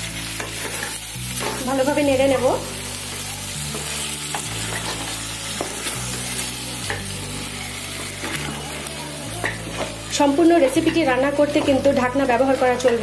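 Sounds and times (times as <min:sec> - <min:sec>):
stir-fry sizzling in a pan: 0:00.0 - 0:13.0
spatula scraping a pan: 0:03.1 - 0:08.7.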